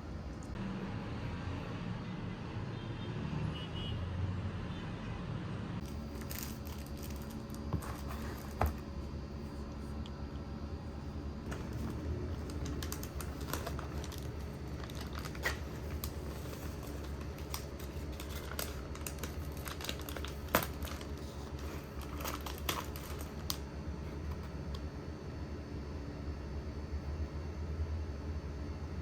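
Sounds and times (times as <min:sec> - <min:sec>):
small clicks and crinkling: 0:05.8 - 0:09.0, 0:11.4 - 0:24.9
steady low hum: 0:05.8 - 0:29.0.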